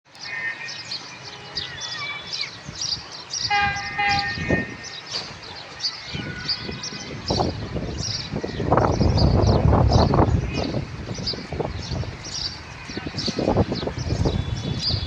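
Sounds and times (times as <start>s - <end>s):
birds chirping: 0.1s - 15.0s
diesel locomotive horn blast: 3.5s - 4.8s.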